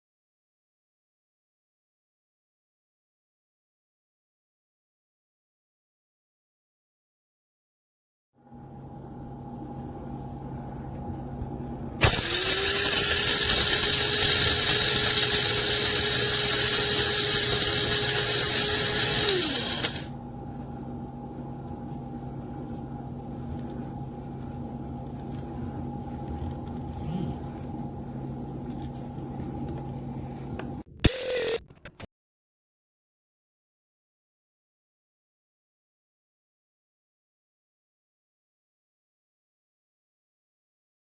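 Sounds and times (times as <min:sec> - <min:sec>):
electric blade grinder motor: 0:12.0 - 0:20.1.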